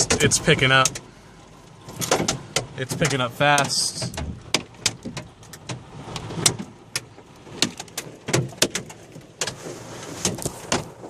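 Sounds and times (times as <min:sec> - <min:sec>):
hail striking a car: 0:06.4 - 0:09.6.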